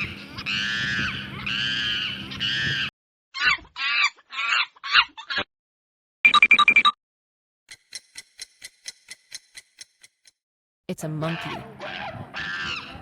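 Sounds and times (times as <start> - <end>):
monkey calls: 11.2 - 13.0.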